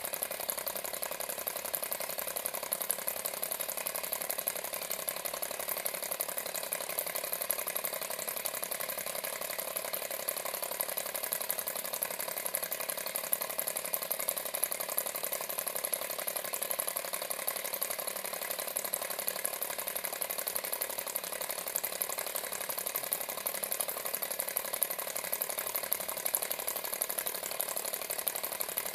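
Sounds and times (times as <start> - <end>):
model engine mechanical rattle: 0.0 - 28.9.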